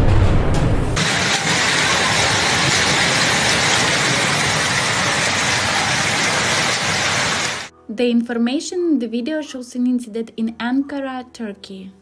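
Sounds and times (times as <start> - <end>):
heavy rain pelting a car: 1.0 - 7.7.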